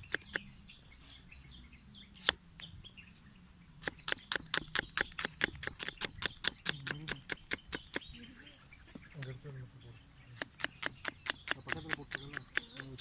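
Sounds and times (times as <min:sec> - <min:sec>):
sharp clicks: 0:00.0 - 0:00.6, 0:03.8 - 0:08.1, 0:10.4 - 0:13.0.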